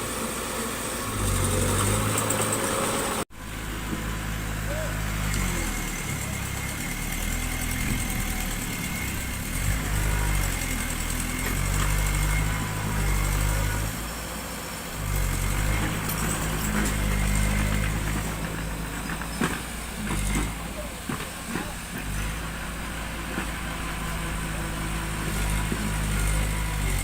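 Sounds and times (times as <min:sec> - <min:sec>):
diesel engine working under load: 0:00.0 - 0:27.0.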